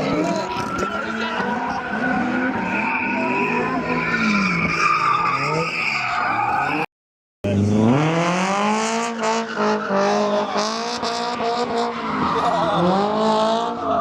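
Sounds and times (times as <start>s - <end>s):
tires squealing: 0.0s - 6.9s, 7.6s - 14.0s
car engine revving: 7.5s - 14.0s.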